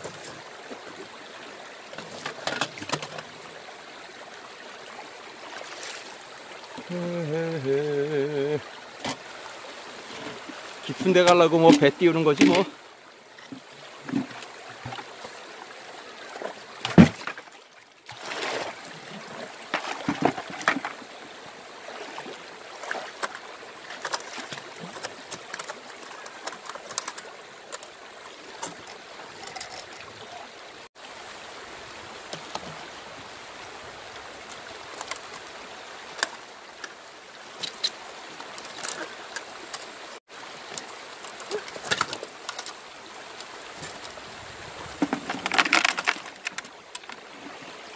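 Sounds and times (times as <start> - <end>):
stream water trickling: 0.0 - 47.9
splashes from wading: 16.2 - 31.0.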